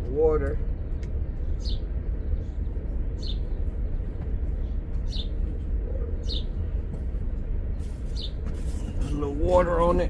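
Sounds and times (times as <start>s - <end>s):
steady low rumble: 0.0s - 10.0s
bird chirping: 0.6s - 6.8s, 7.6s - 9.1s.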